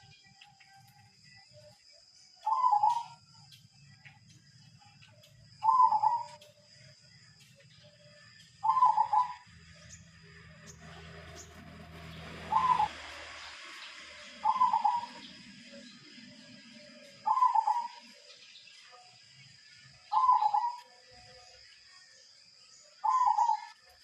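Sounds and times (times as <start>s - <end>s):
dove cooing: 2.4s - 3.2s, 5.6s - 6.4s, 8.6s - 9.4s, 12.4s - 13.0s, 14.4s - 15.4s, 17.2s - 18.1s, 20.1s - 20.8s, 23.0s - 23.8s.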